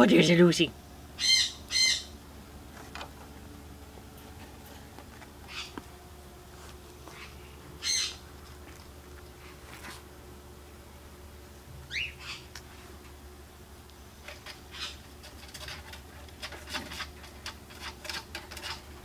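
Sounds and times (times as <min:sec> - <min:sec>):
faint low hum: 0:00.0 - 0:19.0
birds squawking and chirping: 0:01.2 - 0:02.2, 0:05.4 - 0:05.8, 0:07.1 - 0:08.3, 0:11.9 - 0:12.5, 0:14.4 - 0:15.1.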